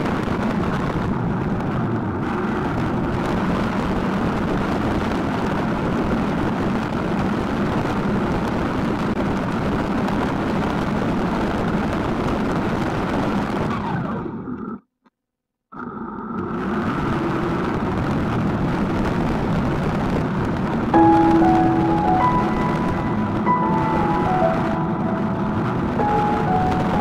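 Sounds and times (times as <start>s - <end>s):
snowmobile running at speed: 0.0s - 14.8s, 15.8s - 21.0s.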